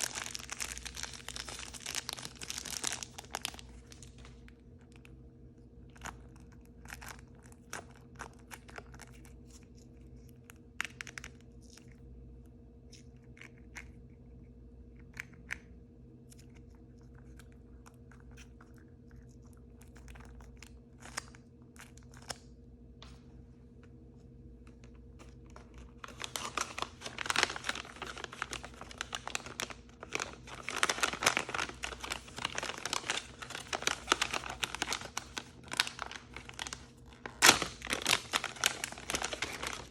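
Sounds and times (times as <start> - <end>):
plastic packaging crinkling and tearing: 0.0 - 5.1, 5.8 - 12.0, 24.7 - 39.9
faint steady hum: 0.0 - 39.9.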